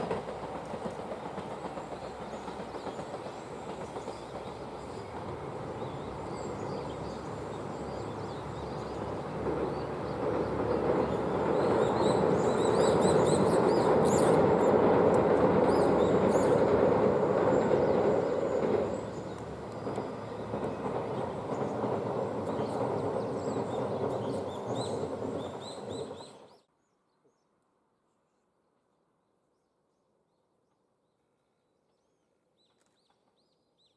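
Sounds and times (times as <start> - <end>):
diesel train engine: 0.0 - 26.6
rail rumble: 0.0 - 26.7.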